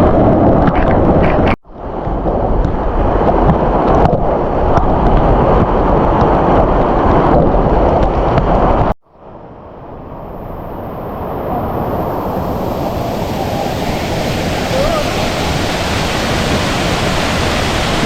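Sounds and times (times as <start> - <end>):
wind buffeting microphone: 0.0 - 18.0
quieter rush of water: 9.1 - 18.0
waterfall rushing: 10.3 - 18.0.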